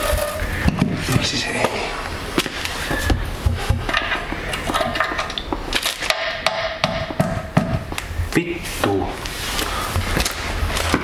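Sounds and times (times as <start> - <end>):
hand tools knocking and scraping: 0.0 - 1.8, 2.4 - 8.0.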